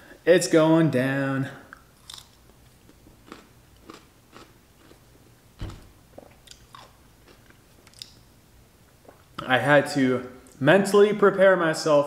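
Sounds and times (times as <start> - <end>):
person chewing a pickle: 1.7 - 8.3
loud thump: 5.6 - 6.0.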